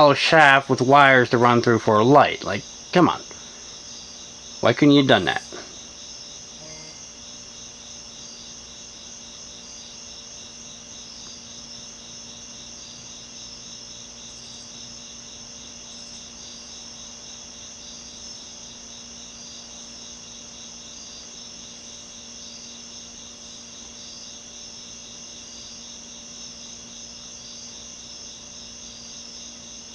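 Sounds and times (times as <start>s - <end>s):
ceiling fan humming: 0.0s - 7.3s
crickets chirping: 0.0s - 29.9s.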